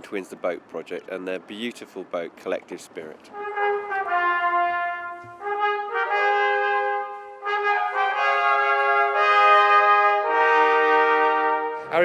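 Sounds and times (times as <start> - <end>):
brass ensemble playing chords: 3.3 - 12.0.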